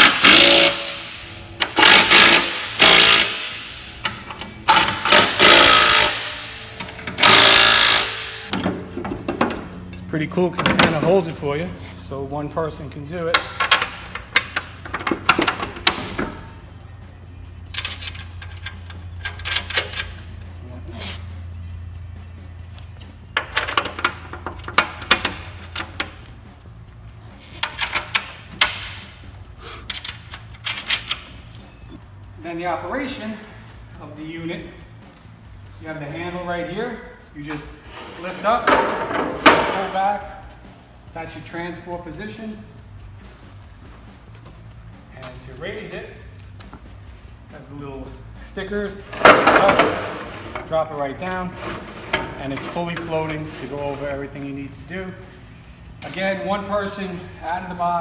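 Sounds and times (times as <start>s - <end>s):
impact driver bursts: 0.0s - 1.1s, 1.7s - 3.8s, 4.7s - 8.5s.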